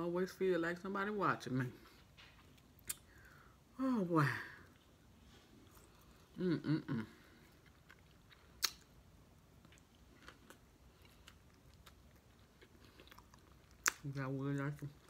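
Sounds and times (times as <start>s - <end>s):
person chewing food: 4.6s - 6.4s, 7.0s - 15.0s
person humming: 6.4s - 7.2s
lip smack: 8.6s - 8.9s.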